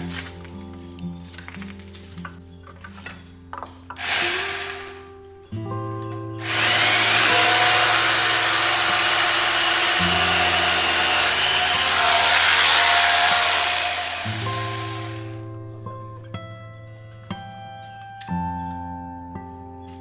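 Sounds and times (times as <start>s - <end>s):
background music: 0.0s - 17.2s
electric power tool running: 4.0s - 5.2s, 6.4s - 15.4s.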